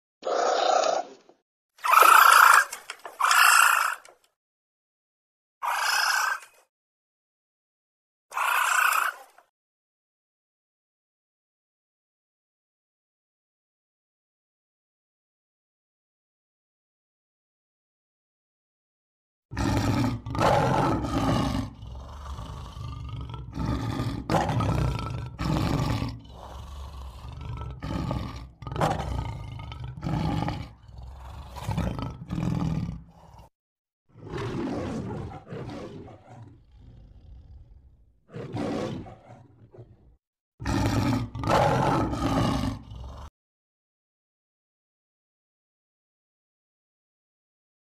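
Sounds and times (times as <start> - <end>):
tiger roaring and growling: 19.5 - 43.3.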